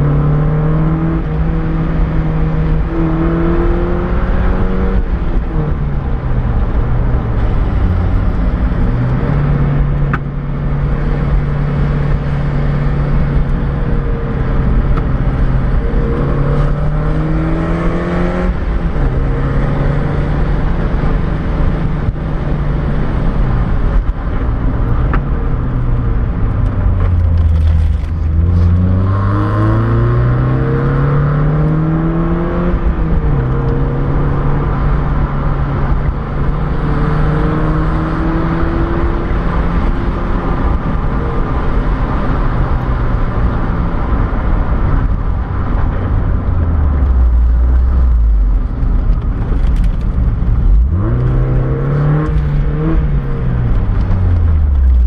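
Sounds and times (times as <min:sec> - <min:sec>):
car engine revving: 0:00.0 - 0:55.0
road noise: 0:00.0 - 0:55.0.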